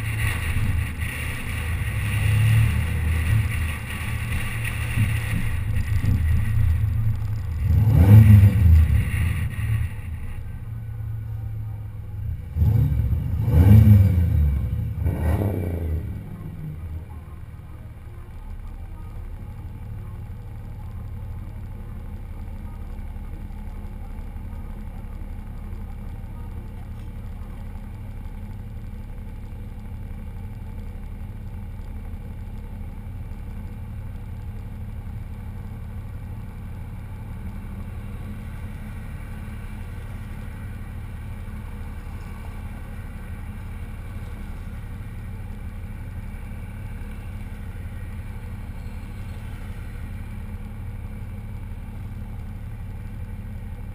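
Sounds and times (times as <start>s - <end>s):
car engine running steadily: 0.0s - 53.9s.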